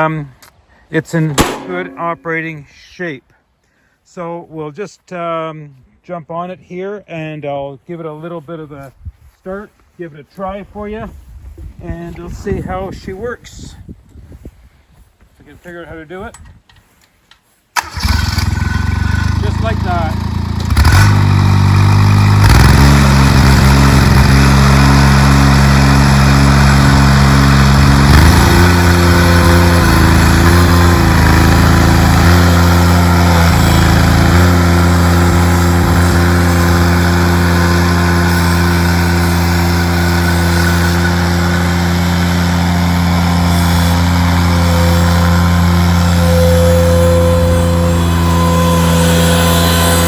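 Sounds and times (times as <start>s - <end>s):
tractor engine running: 1.3s - 2.5s, 17.8s - 50.0s.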